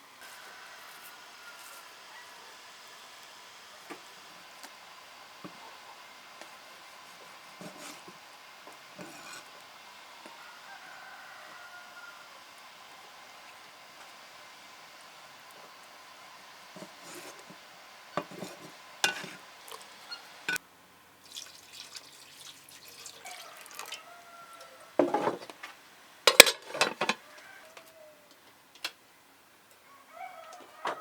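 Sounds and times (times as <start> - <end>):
dishes and utensils clinking: 18.2 - 19.4, 26.3 - 27.2
faint bird calls: 20.0 - 20.4.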